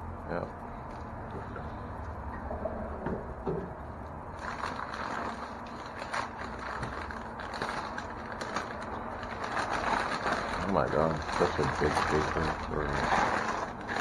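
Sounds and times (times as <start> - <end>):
packing paper crinkling: 4.3 - 14.0.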